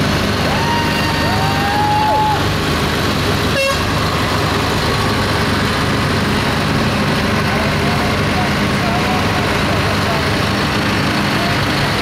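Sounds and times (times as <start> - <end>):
heavy vehicle engines running: 0.0 - 12.0
vehicle horns tooting: 3.5 - 4.0.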